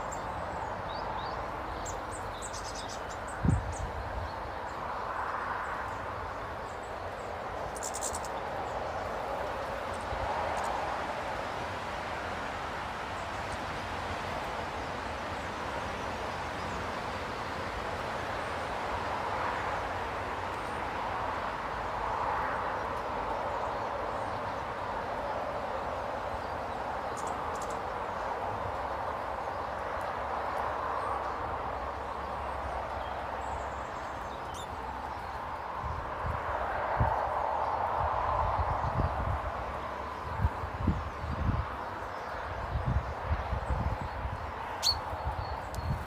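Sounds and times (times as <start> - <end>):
faint high bird chirps: 44.8 - 46.0.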